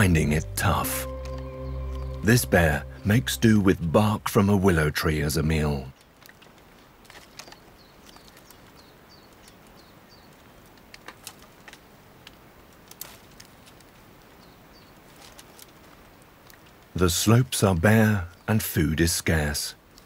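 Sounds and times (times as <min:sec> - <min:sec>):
small bird chirping: 0:00.0 - 0:03.8, 0:06.7 - 0:10.8, 0:14.3 - 0:15.2
sharp clicks and snaps: 0:05.9 - 0:14.0.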